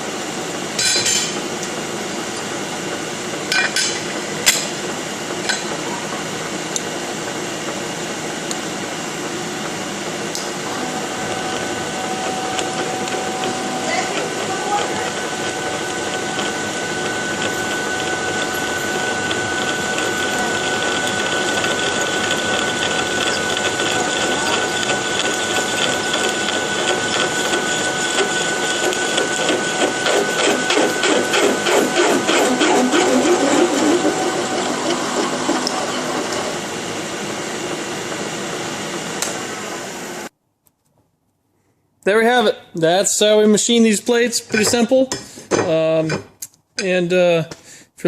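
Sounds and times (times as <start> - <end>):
milling machine cutting steel: 8.8 - 40.3.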